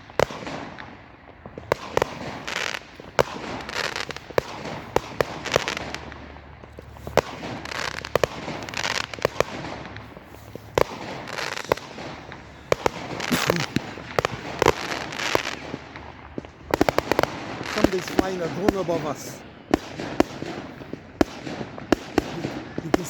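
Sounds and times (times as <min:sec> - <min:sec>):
fireworks bangs: 0:00.0 - 0:23.0
fireworks hiss and crackle: 0:00.0 - 0:23.0.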